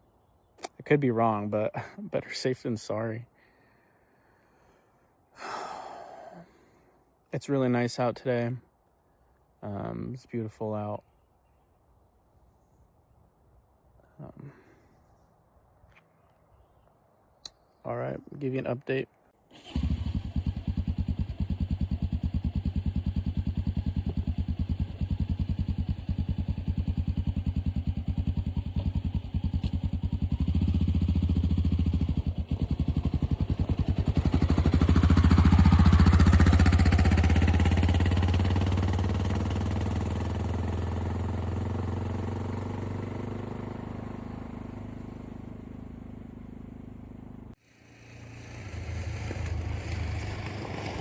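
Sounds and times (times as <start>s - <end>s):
motorcycle engine idling and pulling away: 19.5s - 51.0s.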